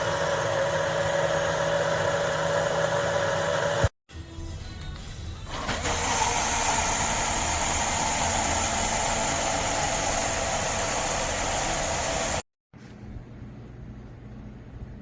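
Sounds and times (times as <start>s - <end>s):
blender motor whining: 0.0s - 3.9s, 5.6s - 12.4s.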